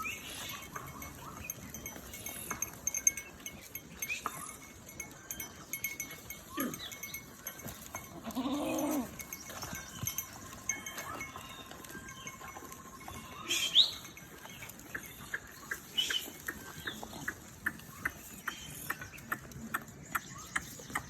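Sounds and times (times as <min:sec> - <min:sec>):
light clinks and taps: 0:00.0 - 0:21.0
goat or sheep bleating: 0:08.0 - 0:09.3.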